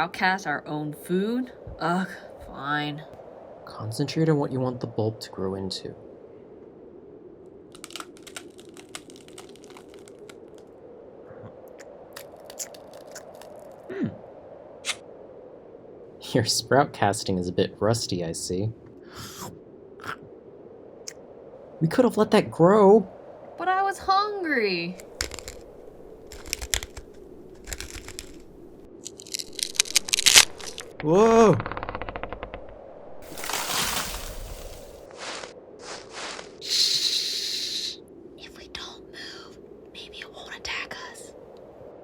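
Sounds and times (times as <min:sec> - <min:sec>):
crunching crackling snaps: 0:07.4 - 0:10.8, 0:11.5 - 0:14.2, 0:24.8 - 0:36.7.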